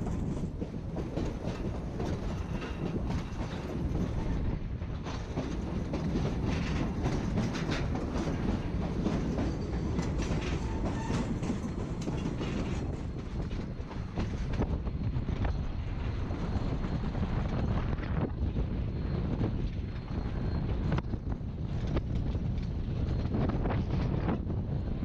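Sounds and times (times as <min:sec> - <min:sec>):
wheels clacking over rail joints: 0:00.0 - 0:18.2
train cars rumbling: 0:00.0 - 0:25.0.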